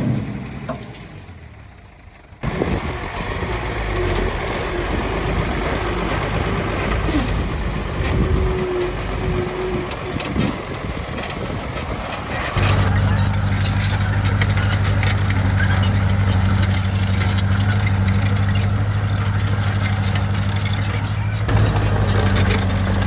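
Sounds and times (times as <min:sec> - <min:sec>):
heavy diesel machinery running: 0:00.0 - 0:23.0.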